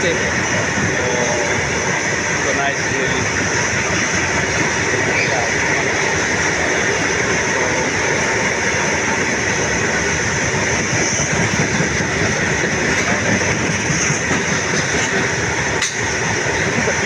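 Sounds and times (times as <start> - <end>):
train wheels rumbling on rails: 0.0 - 17.0
clatter of passing wagons: 10.8 - 17.0.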